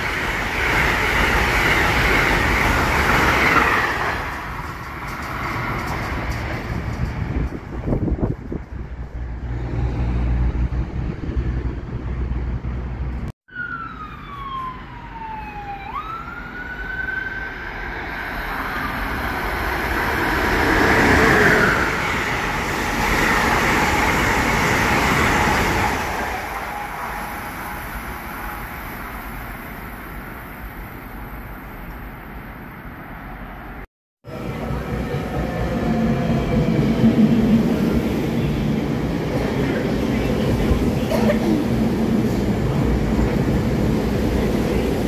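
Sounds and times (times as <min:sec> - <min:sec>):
passenger train passing: 0:00.0 - 0:13.3, 0:14.3 - 0:45.0
siren wailing: 0:13.5 - 0:17.6.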